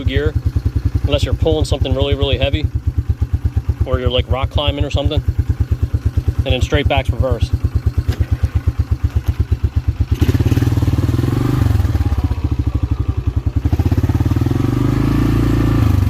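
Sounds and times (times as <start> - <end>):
atv engine idling and revving: 0.0 - 16.0.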